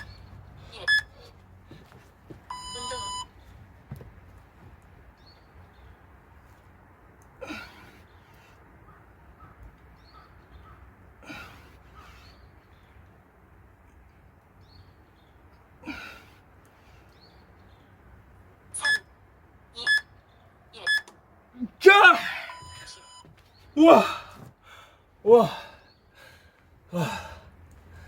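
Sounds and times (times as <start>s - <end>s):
man breathing out hard: 24.0s - 28.0s.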